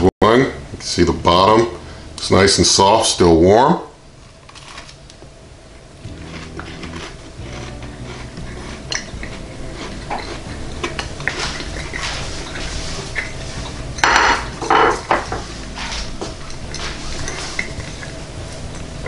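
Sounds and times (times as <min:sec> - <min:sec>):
low steady drone: 0:05.4 - 0:19.0
person chewing cookie: 0:06.1 - 0:14.0.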